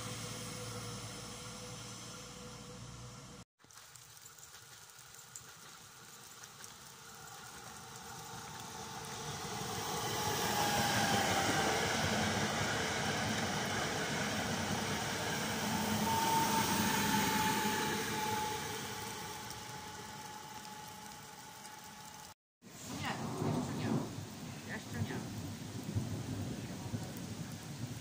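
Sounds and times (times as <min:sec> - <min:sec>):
passenger train passing: 0:00.0 - 0:03.4, 0:07.0 - 0:22.3.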